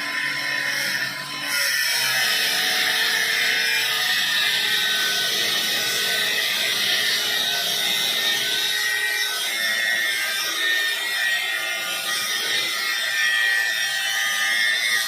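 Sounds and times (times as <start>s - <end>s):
angle grinder cutting metal: 0.0s - 15.0s.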